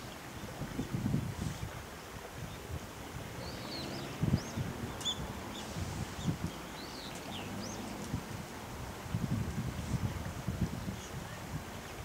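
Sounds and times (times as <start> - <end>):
wind buffeting microphone: 0.0 - 12.0
small birds chirping: 3.4 - 8.0.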